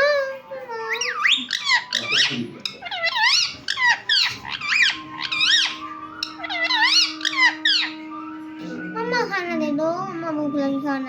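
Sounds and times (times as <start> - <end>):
parrot talking: 0.0 - 11.0
parrot shrill squeaky calls: 0.8 - 8.6.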